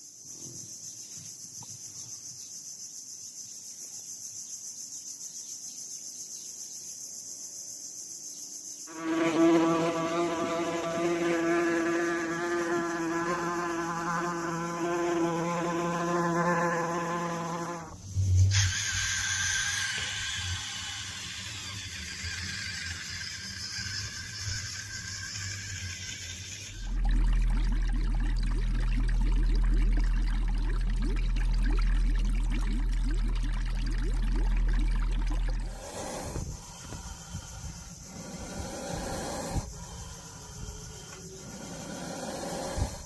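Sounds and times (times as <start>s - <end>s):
insect wings buzzing: 7.0s - 30.7s, 34.4s - 43.0s
hiss: 17.4s - 27.0s, 35.6s - 43.0s
low hum: 22.2s - 38.6s
water bubbling and gurgling: 26.6s - 37.8s.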